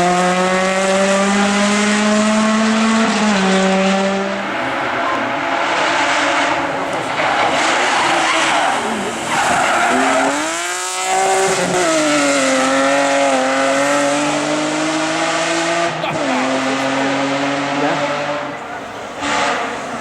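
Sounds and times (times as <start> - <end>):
race car engine at high revs: 0.0 - 20.0
tyres squealing: 4.4 - 12.5.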